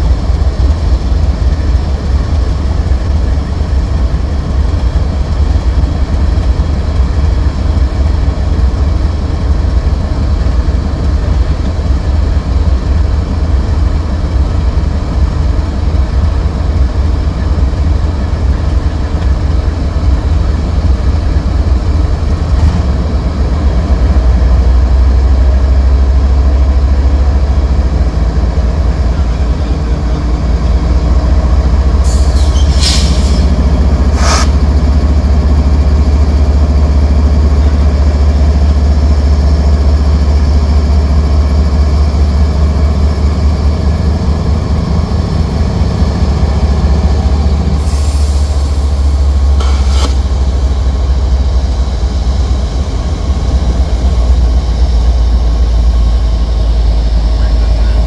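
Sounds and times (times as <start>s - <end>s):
diesel locomotive rumble: 0.0s - 58.0s
high-pitched noise bursts: 34.1s - 34.6s, 48.2s - 50.9s.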